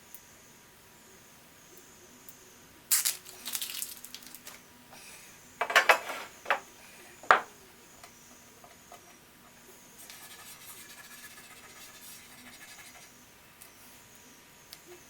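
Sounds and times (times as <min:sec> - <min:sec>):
metal parts clinking and rattling: 0:03.0 - 0:04.6.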